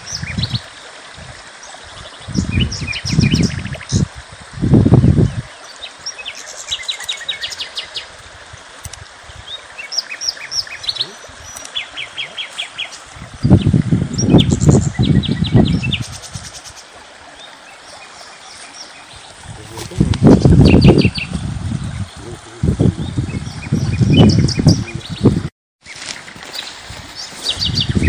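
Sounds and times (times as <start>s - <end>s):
wind buffeting microphone: 0.0s - 5.5s, 13.0s - 16.5s, 19.2s - 25.5s, 26.9s - 28.0s
small birds chirping: 5.0s - 8.1s, 9.3s - 28.0s.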